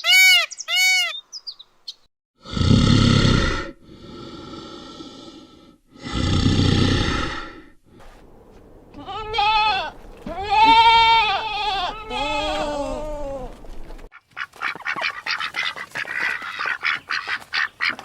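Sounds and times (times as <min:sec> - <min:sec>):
goat bleating: 0:08.9 - 0:13.6.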